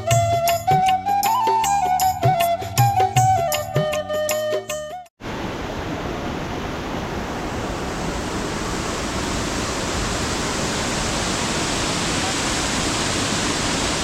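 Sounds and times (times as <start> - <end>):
background music: 0.0 - 5.1
waterfall rushing: 5.2 - 14.0.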